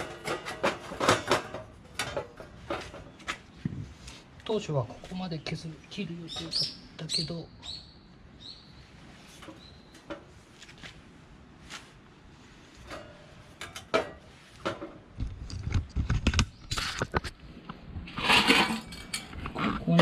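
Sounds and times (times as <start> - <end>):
metal plates clinking and clattering: 0.0 - 3.2, 18.1 - 20.0.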